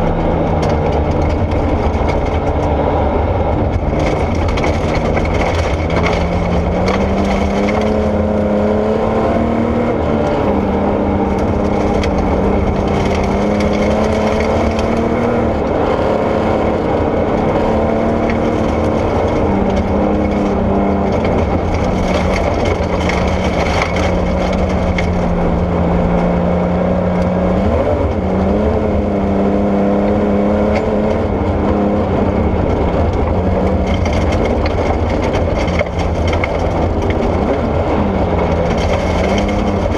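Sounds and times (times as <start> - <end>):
rally car engine revving: 0.0 - 39.9
tyres rushing on gravel: 3.6 - 8.5, 11.1 - 15.6, 17.6 - 25.6, 32.4 - 39.9.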